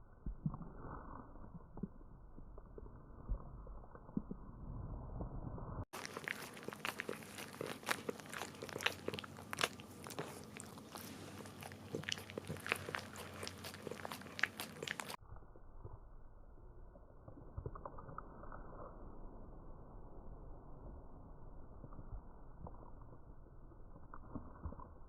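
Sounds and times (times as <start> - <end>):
dog licking plastic bag: 6.0 - 15.2.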